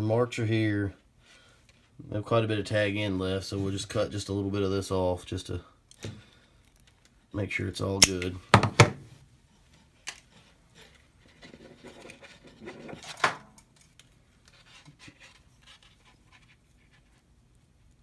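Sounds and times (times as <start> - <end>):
small clicks and rubbing of cable: 5.9 - 7.2, 9.7 - 12.5, 13.6 - 18.0.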